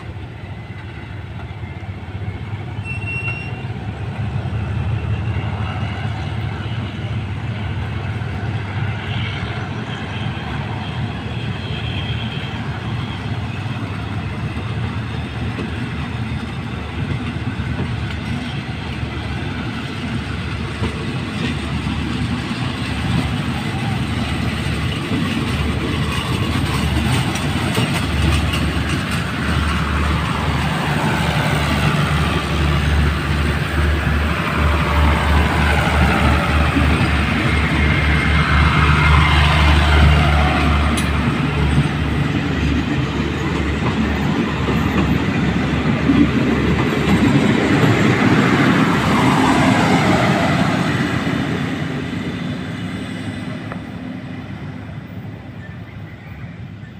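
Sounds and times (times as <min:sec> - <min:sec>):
train wheels clacking over rail joints: 0:14.3 - 0:34.2, 0:34.8 - 0:50.6.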